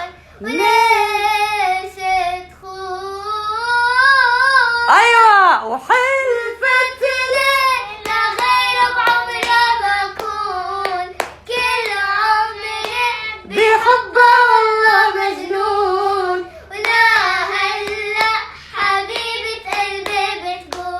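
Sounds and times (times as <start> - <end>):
girl singing: 0.0 - 5.3, 5.9 - 20.9
hand claps keeping time: 7.9 - 12.1, 12.8 - 13.9, 16.8 - 20.9.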